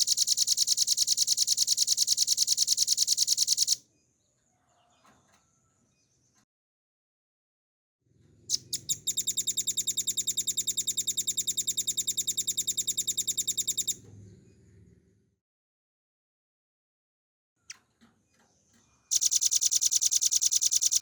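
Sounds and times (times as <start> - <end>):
bird rapid trill: 0.0 - 3.8, 8.5 - 14.0, 19.1 - 21.0.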